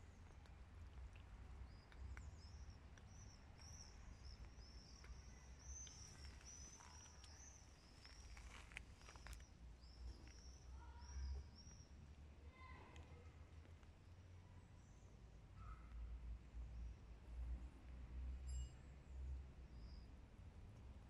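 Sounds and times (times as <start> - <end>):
songbird chirping: 0.0 - 16.0
faint clicks: 0.2 - 7.4.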